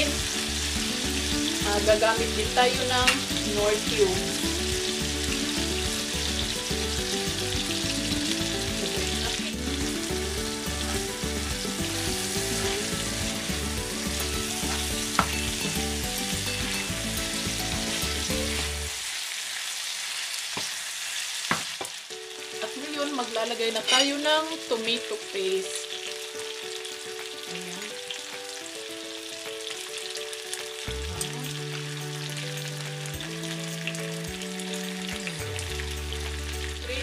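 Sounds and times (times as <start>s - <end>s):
background music with steady beat: 0.0s - 18.9s
chicken sizzling in oil: 0.0s - 37.0s.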